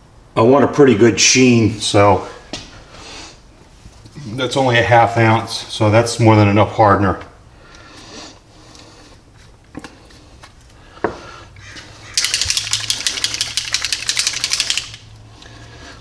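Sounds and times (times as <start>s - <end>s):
paint being mixed rattling: 12.0s - 15.2s.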